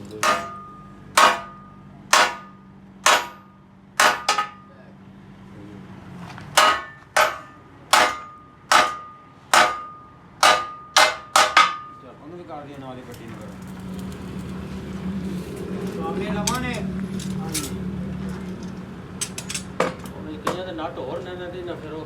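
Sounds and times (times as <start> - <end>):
hammer striking hot metal: 0.0 - 4.7, 6.6 - 12.0.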